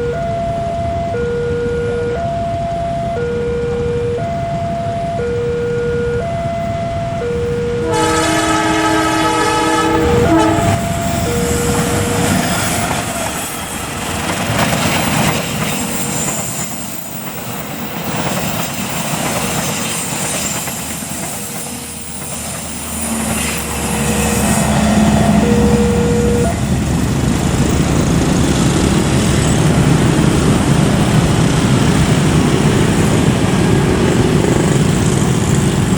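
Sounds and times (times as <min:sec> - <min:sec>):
train horn: 0:07.7 - 0:13.2, 0:23.0 - 0:26.7
train wheels clattering: 0:09.4 - 0:35.9.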